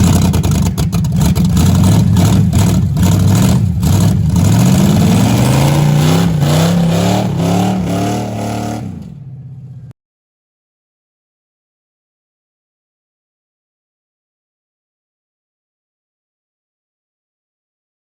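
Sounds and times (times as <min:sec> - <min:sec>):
car engine accelerating: 0:00.0 - 0:09.9.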